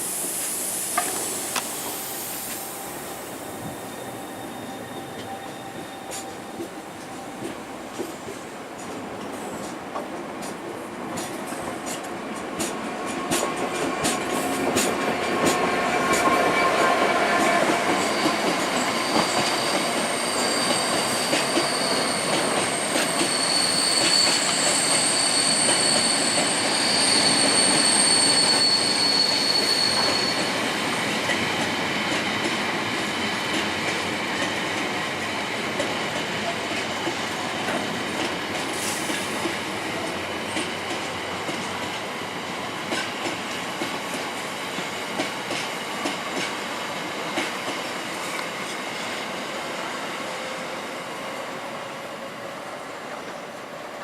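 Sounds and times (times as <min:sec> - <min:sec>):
train wheels clicking over rail joints: 0:00.2 - 0:01.8, 0:06.1 - 0:49.2
high-pitched wheel squeal: 0:02.2 - 0:06.6, 0:18.0 - 0:30.6.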